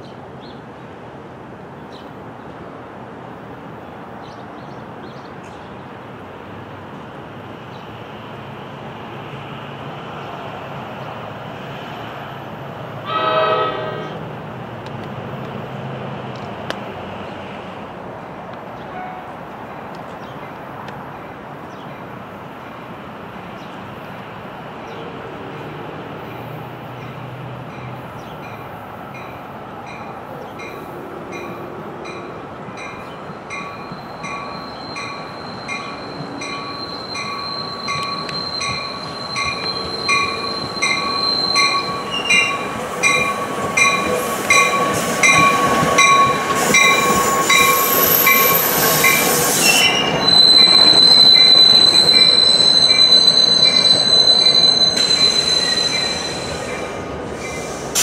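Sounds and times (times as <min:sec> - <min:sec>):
commuter train drawing in: 0:00.0 - 0:58.0
high squeal of brakes: 0:33.8 - 0:58.0.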